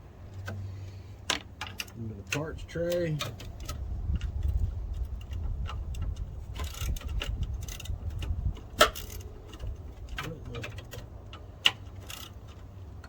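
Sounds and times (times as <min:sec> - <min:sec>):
metallic clicks of hand tools: 0:01.2 - 0:12.7
wind rumble on microphone: 0:02.4 - 0:11.0.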